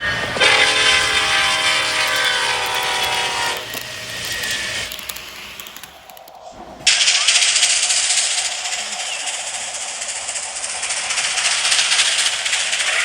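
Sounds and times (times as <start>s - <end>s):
model train horn: 0.0s - 4.9s.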